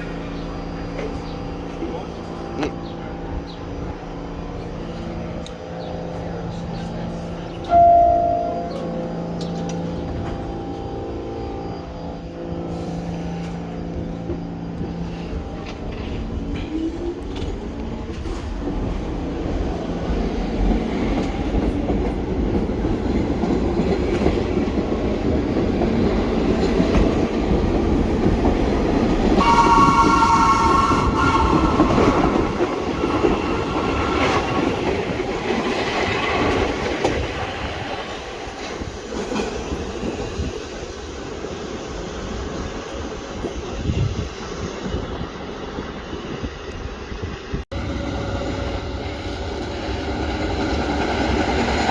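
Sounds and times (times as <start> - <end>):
train horn: 7.7 - 17.0, 29.2 - 32.7.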